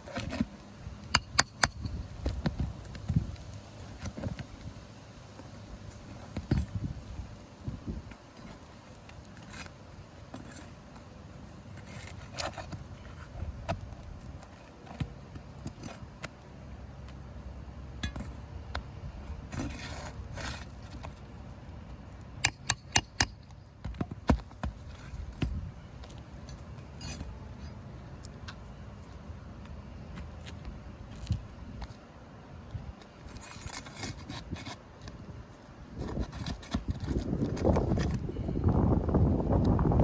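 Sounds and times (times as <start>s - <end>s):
metal bar scraping shingles: 8.3s - 11.1s, 11.7s - 13.8s, 19.3s - 21.4s, 26.1s - 27.9s, 33.1s - 35.1s, 35.9s - 38.2s.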